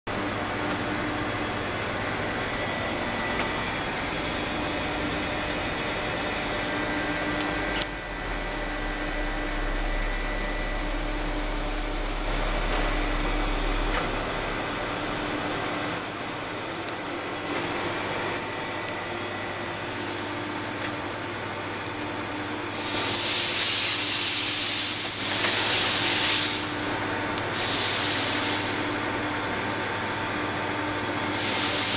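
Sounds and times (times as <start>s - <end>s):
milling machine motor hum: 0.1s - 31.9s
loud hissing bursts: 22.7s - 26.8s, 27.5s - 28.8s, 31.3s - 31.9s.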